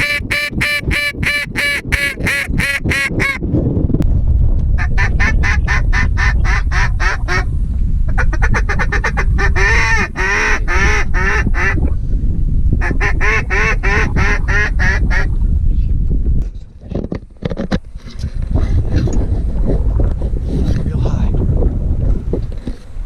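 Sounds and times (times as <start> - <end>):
duck call quacking: 0.0 - 3.4
wind rumble on microphone: 0.0 - 23.0.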